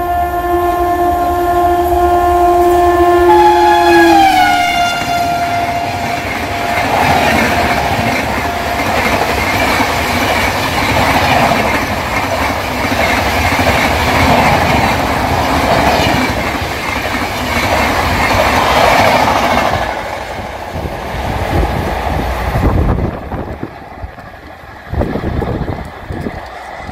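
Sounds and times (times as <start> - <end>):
train horn: 0.0 - 9.7
passenger train passing: 0.0 - 26.9.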